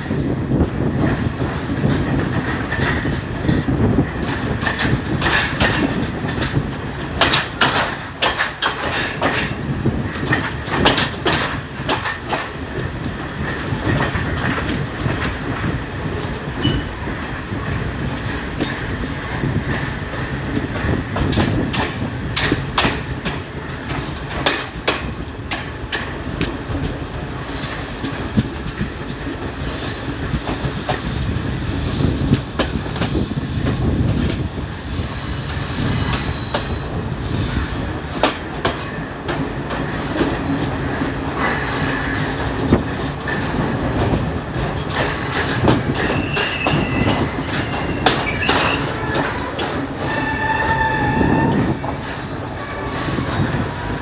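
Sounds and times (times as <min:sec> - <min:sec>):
train rumbling on rails: 0:00.0 - 0:54.0
wheels clicking over rail joints: 0:01.8 - 0:15.8, 0:38.0 - 0:54.0
high-pitched wheel squeal: 0:29.7 - 0:37.9, 0:46.0 - 0:53.8.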